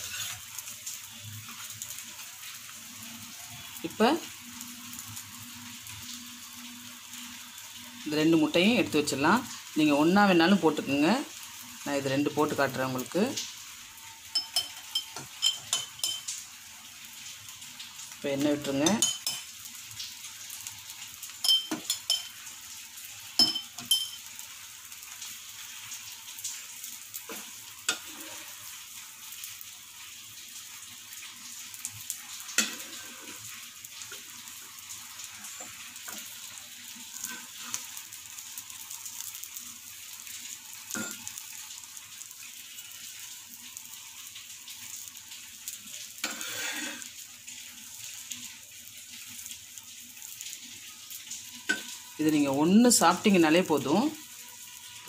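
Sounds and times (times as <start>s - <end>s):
metal spatula scraping pan: 0.0s - 0.6s, 27.3s - 28.8s, 32.5s - 33.6s, 46.2s - 47.1s
egg and oil sizzling on griddle: 0.0s - 55.0s.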